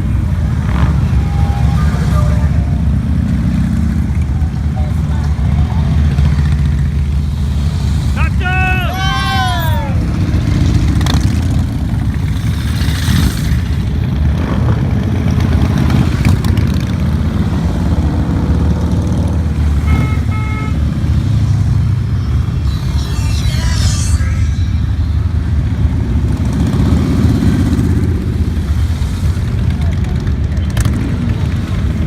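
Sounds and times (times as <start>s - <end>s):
motorcycle engines rumbling: 0.0s - 32.0s
short beeps: 21.5s - 25.8s.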